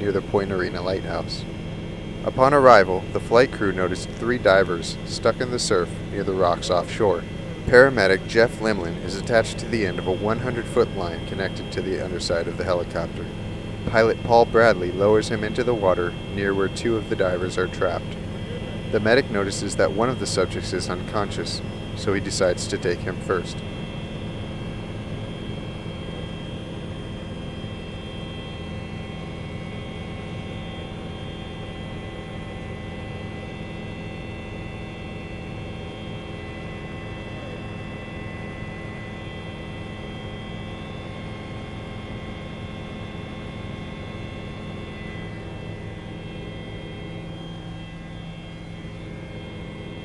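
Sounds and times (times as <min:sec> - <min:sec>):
helicopter hovering: 0:00.0 - 0:50.0
whining tones: 0:00.0 - 0:50.0.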